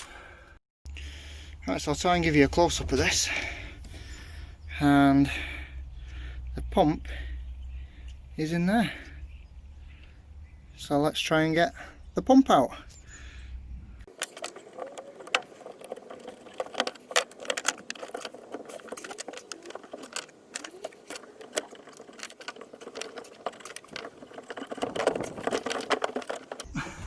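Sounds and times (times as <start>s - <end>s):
parts clicking and rattling: 12.8s - 27.0s.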